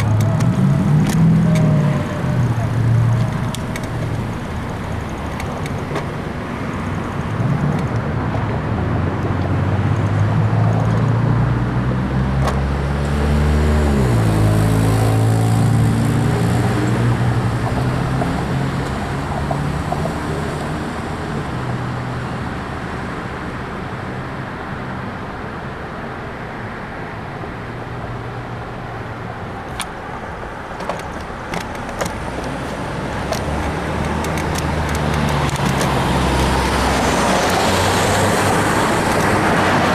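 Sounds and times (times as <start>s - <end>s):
road and wind noise: 0.0s - 39.9s
sharp clicks: 30.8s - 37.6s
motor vehicle passing: 32.2s - 39.9s.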